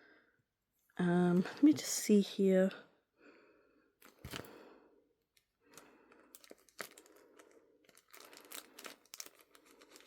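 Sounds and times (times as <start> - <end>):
paper crinkling: 5.7 - 10.0.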